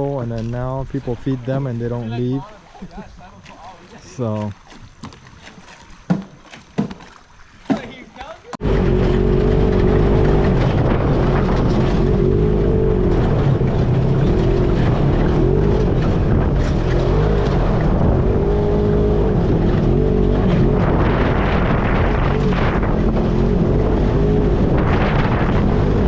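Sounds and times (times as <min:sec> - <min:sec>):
atv engine revving: 0:08.6 - 0:26.0.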